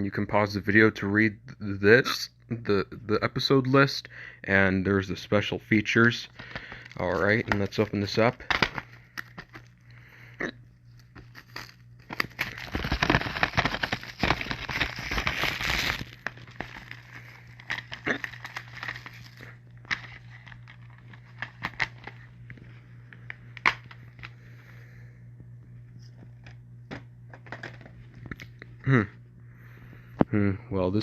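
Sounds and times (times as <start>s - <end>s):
plastic shrink wrap crinkling: 6.3s - 9.8s, 10.9s - 24.3s.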